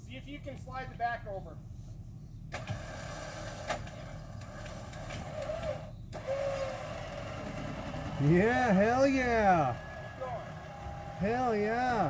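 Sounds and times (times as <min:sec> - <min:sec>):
winch running under load: 0:02.6 - 0:12.0.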